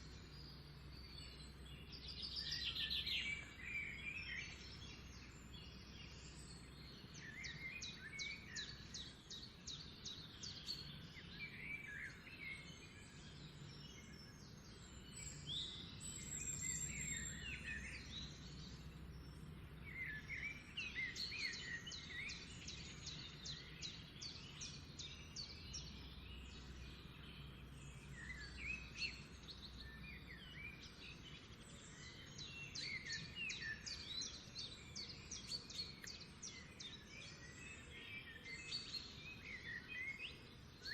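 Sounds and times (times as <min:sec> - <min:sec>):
songbird trills and chirps: 0:00.0 - 0:40.9.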